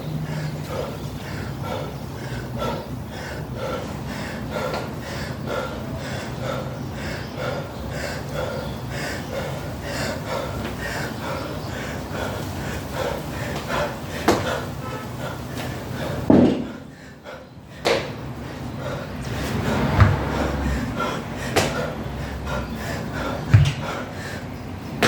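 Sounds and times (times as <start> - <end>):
man breathing hard: 0.0 - 25.0.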